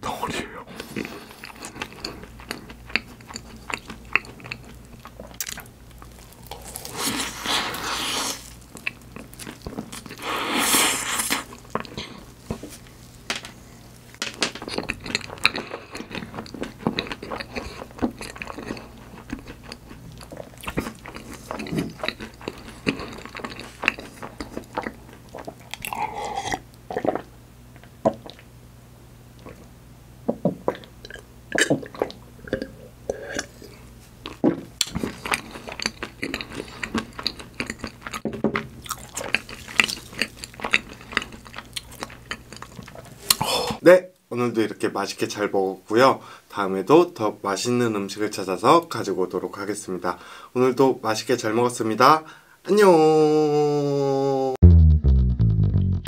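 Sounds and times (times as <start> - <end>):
chewing and crunching pastry: 0.7 - 10.3, 14.4 - 27.3, 33.3 - 43.5.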